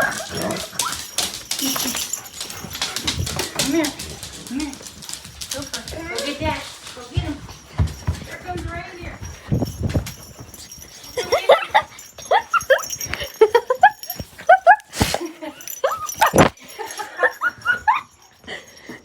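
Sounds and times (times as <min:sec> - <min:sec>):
dog whining and yipping: 0:11.3 - 0:16.6.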